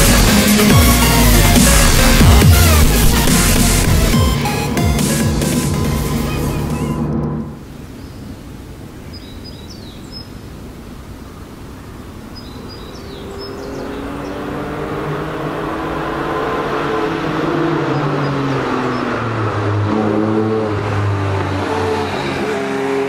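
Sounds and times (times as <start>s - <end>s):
sports car engine: 0.0s - 7.9s, 10.8s - 23.0s
bird chirps: 9.0s - 10.4s, 11.2s - 14.7s.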